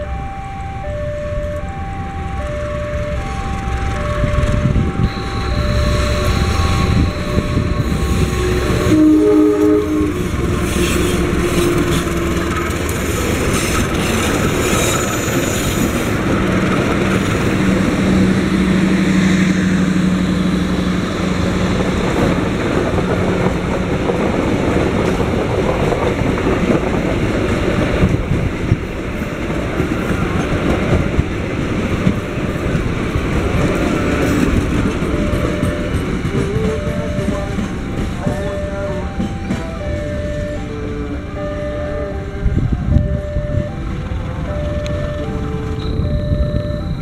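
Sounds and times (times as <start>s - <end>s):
diesel locomotive passing: 0.0s - 47.0s
train wheels clickety-clack: 10.0s - 18.6s, 20.8s - 41.0s.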